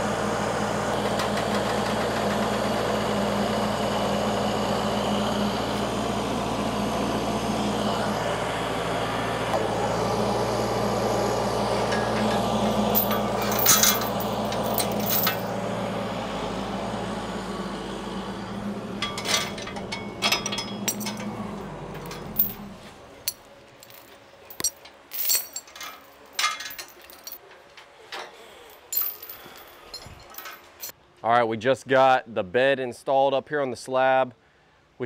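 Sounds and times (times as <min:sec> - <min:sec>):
low hum: 0:03.3 - 0:27.8
metal tools clinking and knocking: 0:11.9 - 0:15.5, 0:19.0 - 0:30.9.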